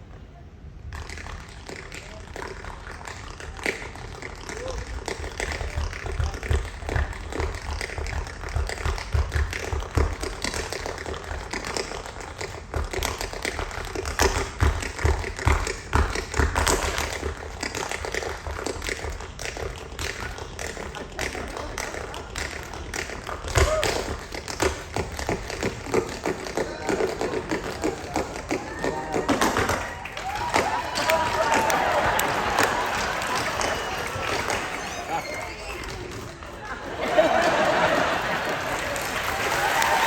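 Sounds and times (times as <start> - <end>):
tap shoes clicking on stage: 0.8 - 40.0
feet stamping thumps: 5.0 - 34.6.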